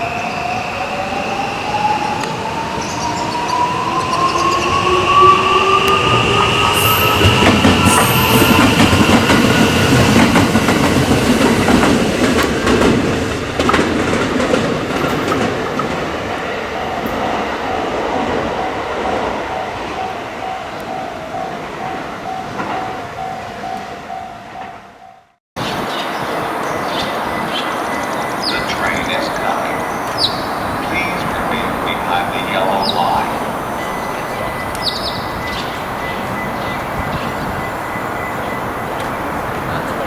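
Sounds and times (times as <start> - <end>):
wheels clattering on rail: 5.4 - 24.9, 25.6 - 40.0
electric train motors whining: 26.2 - 40.0
pulsing steady tone: 26.2 - 40.0.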